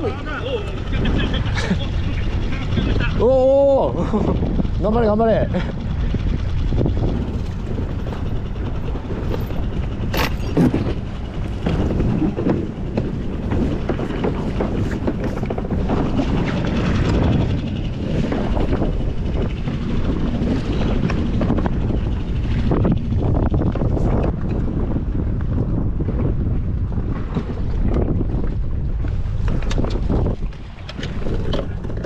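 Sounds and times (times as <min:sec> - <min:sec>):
outboard motor running: 0:00.0 - 0:32.0
wind buffeting microphone: 0:00.0 - 0:32.0.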